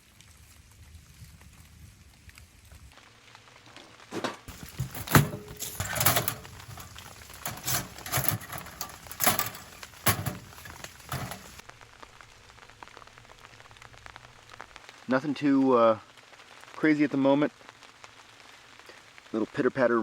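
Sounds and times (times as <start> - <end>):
knocks and rasping on firewood: 4.1 - 11.6.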